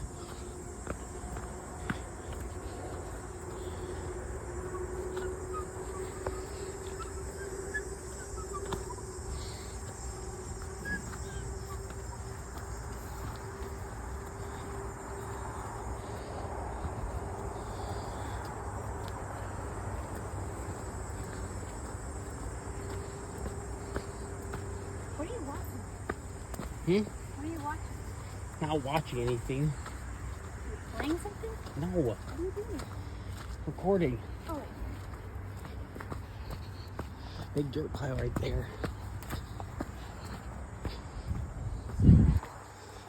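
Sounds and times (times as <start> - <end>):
low hum: 0.0 - 31.6
crickets and insects chorus: 0.0 - 43.0.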